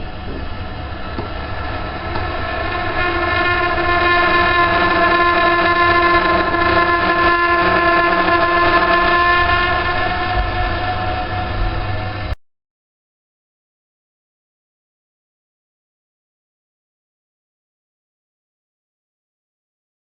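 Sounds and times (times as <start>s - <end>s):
gas boiler droning: 0.0s - 12.4s.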